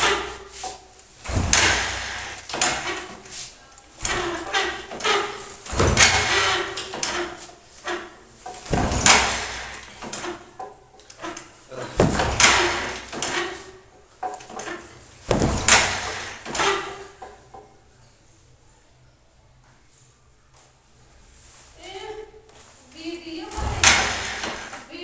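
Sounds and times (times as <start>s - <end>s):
motorcycle engine cranking: 0.0s - 17.7s.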